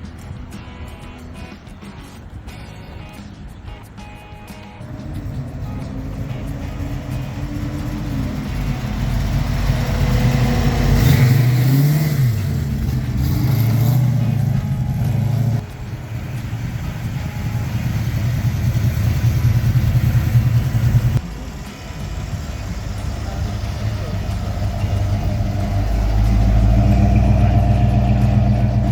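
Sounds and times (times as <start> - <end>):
car engine revving: 4.7 - 28.9.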